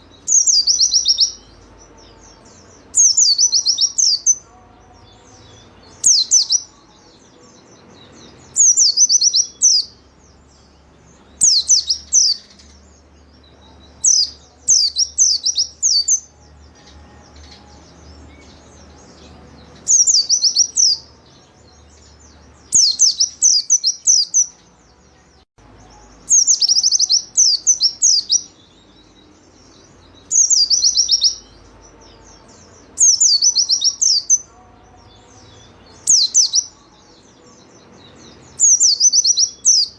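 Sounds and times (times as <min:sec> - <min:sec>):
bird chirping rapidly: 0:00.0 - 0:04.4, 0:05.6 - 0:06.8, 0:08.1 - 0:16.4, 0:18.3 - 0:21.2, 0:22.0 - 0:24.6, 0:26.0 - 0:31.7, 0:32.4 - 0:34.4, 0:36.0 - 0:36.8, 0:38.5 - 0:39.9.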